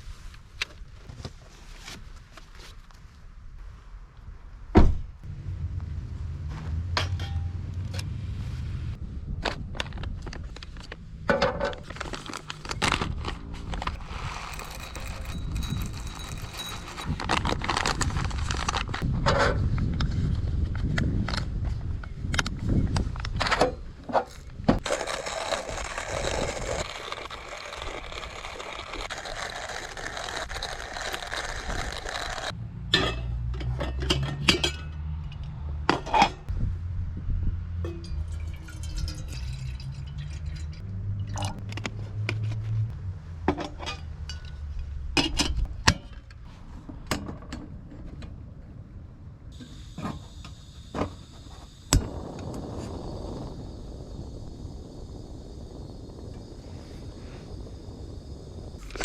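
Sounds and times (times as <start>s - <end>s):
low hum: 5.2s - 10.0s.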